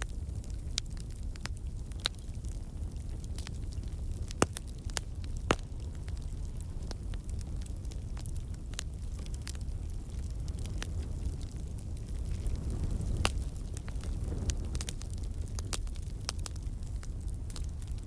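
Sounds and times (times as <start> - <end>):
campfire flame rumble: 0.0 - 18.0
fire crackles and pops: 0.0 - 18.0.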